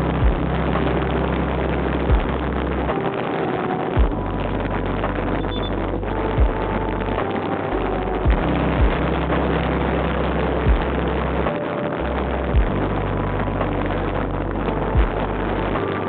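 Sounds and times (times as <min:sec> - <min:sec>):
vehicle running rumble: 0:00.0 - 0:02.9
dull low thumps: 0:00.0 - 0:03.0, 0:04.0 - 0:11.5, 0:12.2 - 0:15.8.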